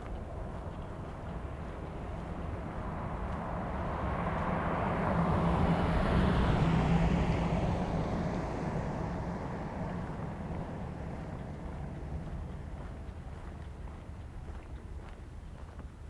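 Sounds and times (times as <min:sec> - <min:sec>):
passing vehicle rushing hum: 0:02.0 - 0:13.1.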